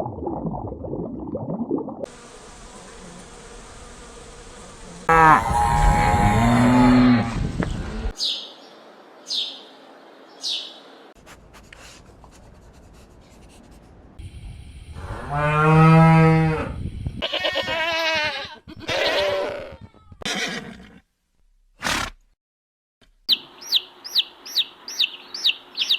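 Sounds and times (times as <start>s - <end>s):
wavering animal calls: 5.1s - 7.2s
cow mooing: 5.1s - 8.2s, 15.2s - 16.8s.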